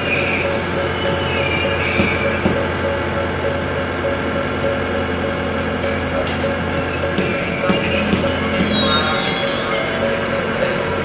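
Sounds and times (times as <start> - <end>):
wheel or brake squeal: 0.0 - 3.9, 5.9 - 11.0
electric train running gear hum: 0.0 - 11.0.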